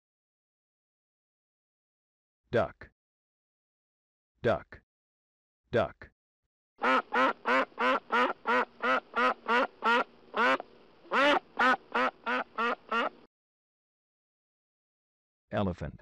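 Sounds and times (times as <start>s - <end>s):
duck quacking: 6.8s - 13.2s.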